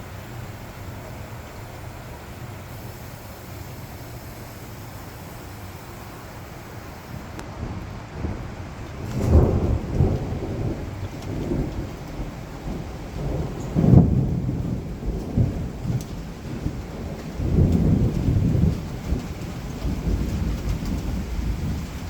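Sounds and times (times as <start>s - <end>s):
steady rain: 0.0s - 22.0s
thunder rumbling: 6.4s - 22.0s.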